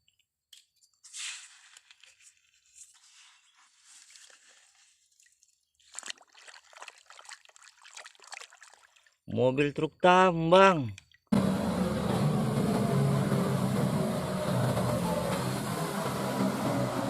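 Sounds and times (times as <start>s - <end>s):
wet sand crunching and sloshing: 3.7s - 9.1s.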